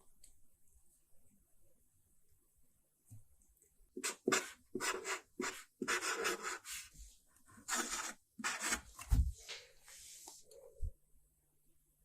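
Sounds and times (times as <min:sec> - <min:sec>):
cat claws scratching cardboard: 0:07.6 - 0:09.0.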